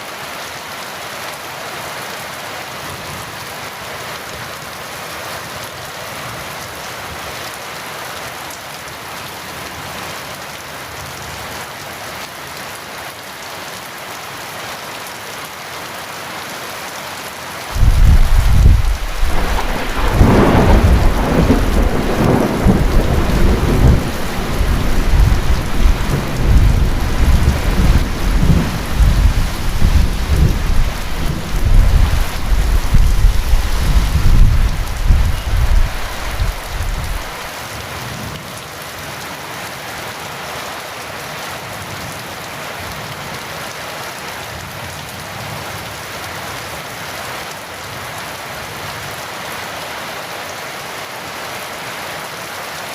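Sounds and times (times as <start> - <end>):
heavy rain: 0.0 - 52.9
thunder rumbling: 17.7 - 37.5.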